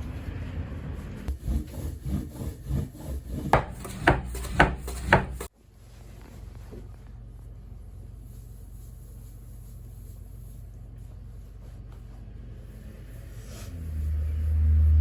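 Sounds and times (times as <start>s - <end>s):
rubbing and knocking on wood: 1.3s - 5.5s.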